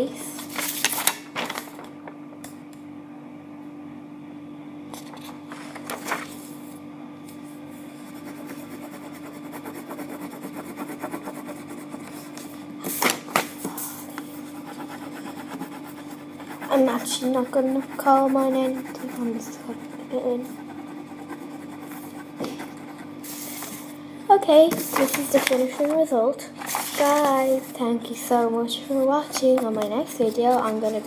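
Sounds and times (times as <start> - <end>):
steady low hum: 0.0 - 31.0
pencil scratching on paper: 8.0 - 12.5, 14.3 - 23.8.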